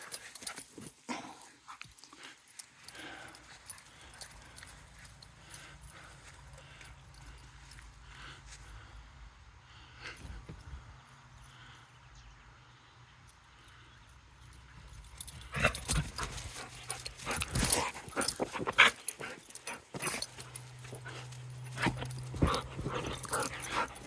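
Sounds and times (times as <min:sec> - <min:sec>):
dog scuffling and knocking: 0:19.8 - 0:24.0.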